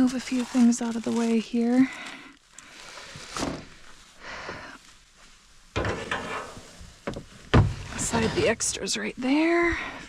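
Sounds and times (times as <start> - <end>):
rustling scraping handling noise: 0.0 - 1.8, 5.2 - 9.0
objects knocking: 5.8 - 8.2.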